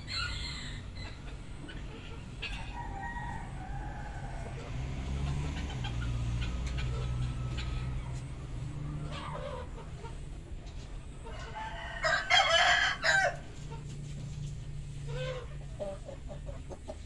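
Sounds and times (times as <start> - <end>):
rooster crowing: 0.0 - 1.2, 2.5 - 4.9, 11.3 - 13.6
chicken clucking: 0.0 - 17.0.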